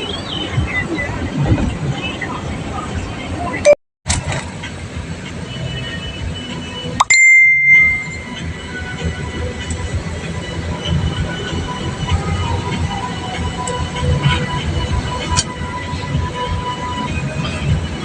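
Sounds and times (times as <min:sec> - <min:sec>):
road rumble inside car: 0:00.0 - 0:07.0, 0:08.3 - 0:18.0
brief high tone: 0:07.0 - 0:08.4.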